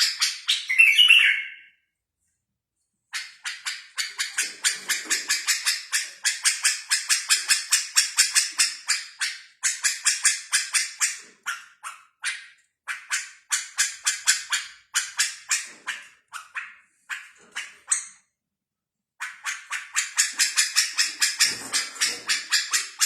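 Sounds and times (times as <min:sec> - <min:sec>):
bird calling harsh notes: 0:00.0 - 0:01.8.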